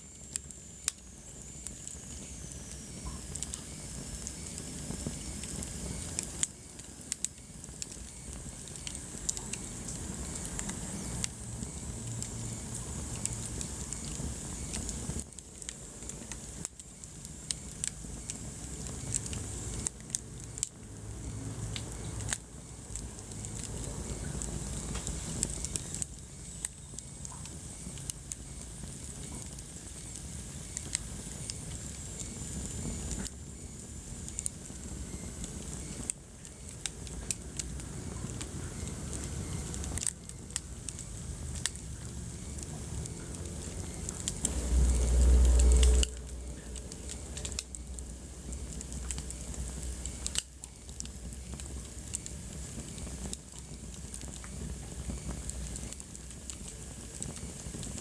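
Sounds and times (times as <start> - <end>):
fire crackling and popping: 0.0 - 58.0
low rumble of flame: 0.0 - 58.0.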